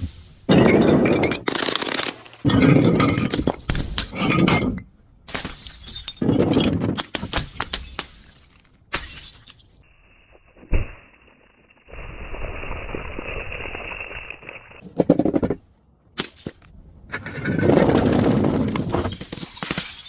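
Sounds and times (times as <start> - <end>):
glass crushing and shattering: 0.5 - 6.4, 7.0 - 9.8, 18.7 - 20.0
clinking glass shards: 5.4 - 6.3, 7.5 - 9.8, 18.9 - 20.0.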